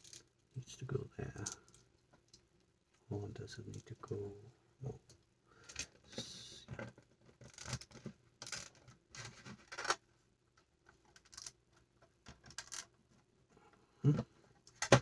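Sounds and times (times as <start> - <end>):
plastic bricks clicking and scraping: 11.1 - 11.6, 12.3 - 12.9.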